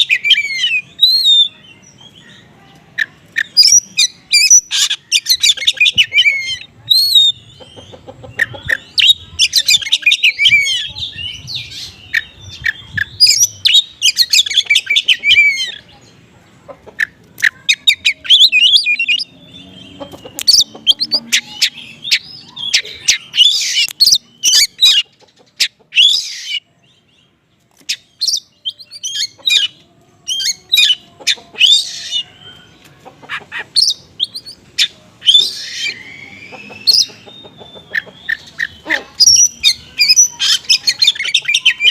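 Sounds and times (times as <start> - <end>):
bird singing rapid chirps and trills: 0.0 - 41.9.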